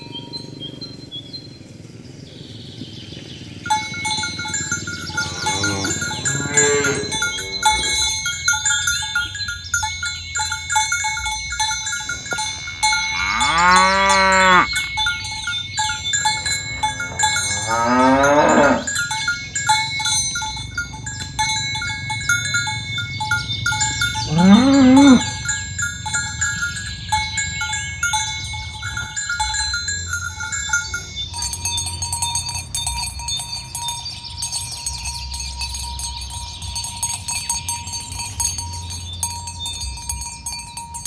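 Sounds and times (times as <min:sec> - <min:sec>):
bells clinking: 0:00.0 - 0:41.0
cows mooing: 0:03.2 - 0:09.4, 0:12.0 - 0:31.5.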